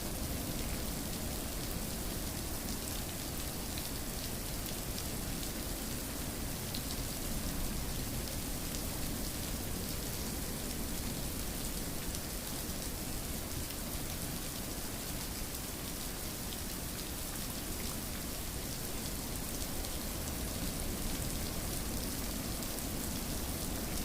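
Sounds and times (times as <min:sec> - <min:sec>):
rain falling on a surface: 0:00.0 - 0:24.0.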